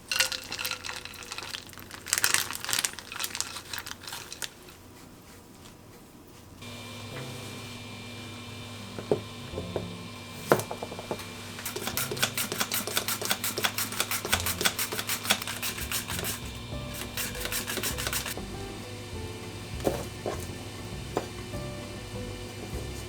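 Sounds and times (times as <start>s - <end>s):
quick chopping strokes: 11.6s - 18.4s.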